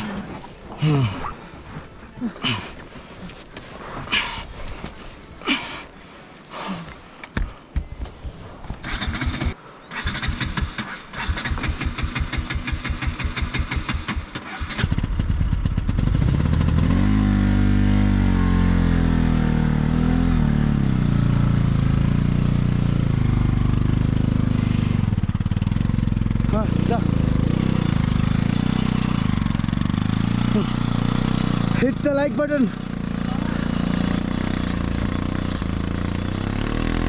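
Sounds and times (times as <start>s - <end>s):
motorcycle engine cranking: 8.8s - 16.6s
motorcycle engine running: 11.4s - 37.0s.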